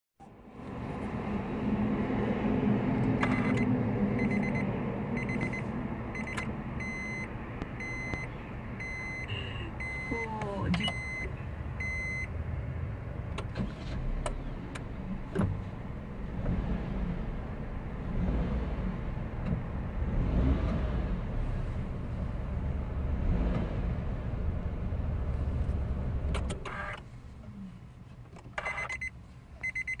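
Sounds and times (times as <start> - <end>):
car warning chime beeping: 3.2 - 12.3, 28.6 - 30.0
car engine idling: 13.1 - 29.6.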